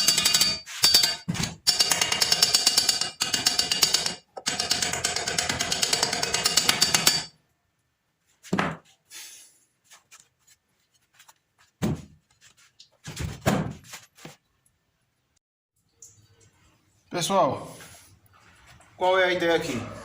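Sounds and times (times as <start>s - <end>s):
dull thuds and knocks: 8.5s - 8.9s, 11.8s - 12.2s, 13.0s - 13.9s.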